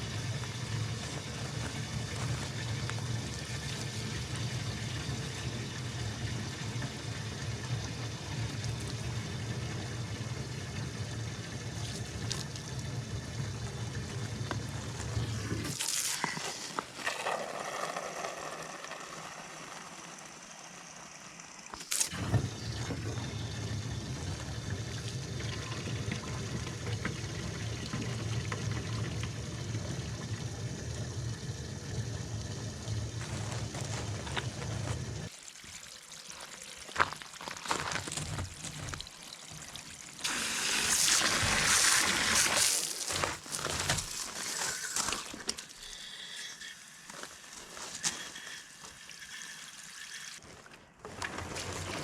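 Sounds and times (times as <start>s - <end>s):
liquid pouring and trickling: 0.0s - 52.0s
loud spraying hiss: 40.2s - 45.3s.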